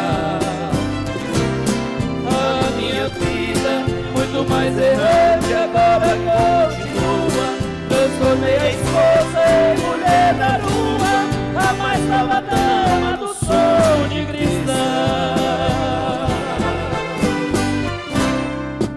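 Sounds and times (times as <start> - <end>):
song with band and bass line: 0.0 - 18.9.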